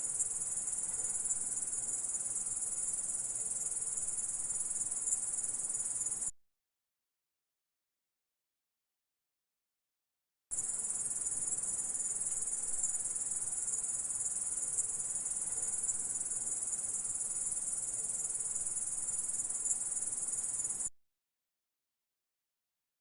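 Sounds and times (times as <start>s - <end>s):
grasshopper stridulating: 0.0s - 6.3s, 10.5s - 20.9s.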